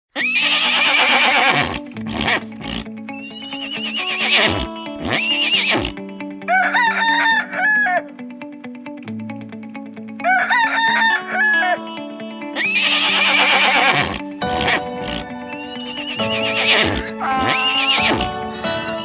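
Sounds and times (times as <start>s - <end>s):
horse whinnying: 0.1s - 6.0s, 12.6s - 18.3s
gliding animal calls: 0.2s - 6.0s, 12.6s - 18.3s
short repeated animal calls: 0.2s - 6.0s, 12.6s - 18.3s
light background music: 0.4s - 19.0s.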